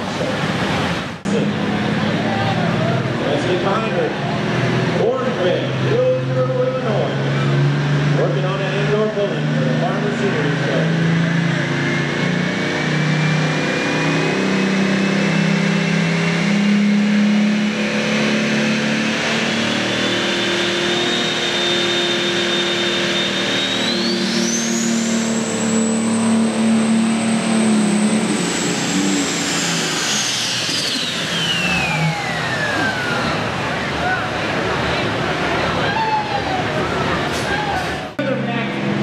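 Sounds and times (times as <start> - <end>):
diesel engine running under load: 0.0 - 39.0
high turbo whistle: 12.9 - 33.6.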